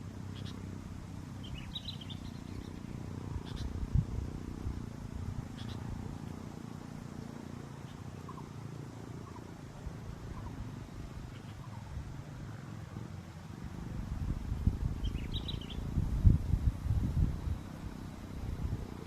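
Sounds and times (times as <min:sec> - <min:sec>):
faint bird chirps: 0:00.2 - 0:00.8, 0:01.4 - 0:04.1, 0:05.4 - 0:06.4, 0:07.1 - 0:12.8, 0:14.5 - 0:16.0
wind buffeting microphone: 0:00.7 - 0:06.3, 0:09.9 - 0:19.0.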